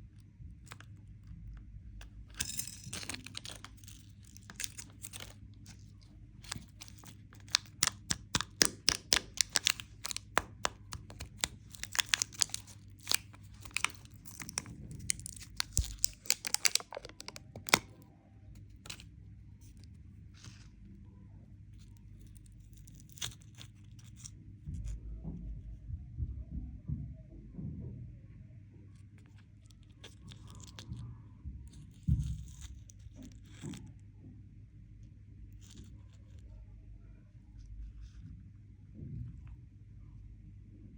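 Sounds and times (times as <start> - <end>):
candy wrapper crinkling: 2.0 - 18.0, 18.6 - 20.7, 21.8 - 24.3, 29.8 - 30.8.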